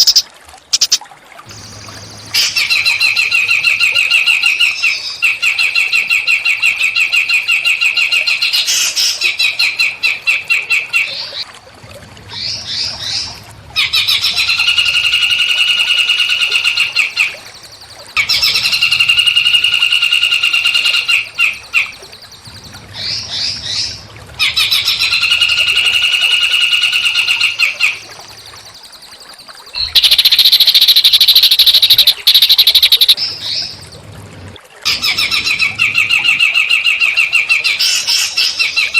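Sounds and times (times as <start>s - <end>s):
songbird buzzy trills: 0.0s - 11.4s, 12.3s - 38.9s
songbird chirping phrases: 25.7s - 34.0s.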